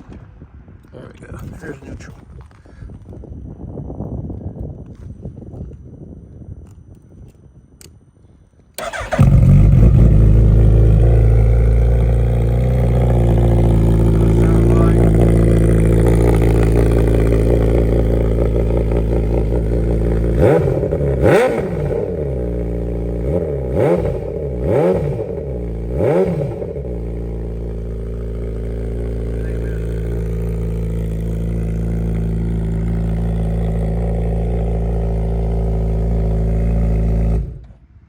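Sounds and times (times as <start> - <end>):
motorcycle engine idling and revving: 8.8 - 38.0.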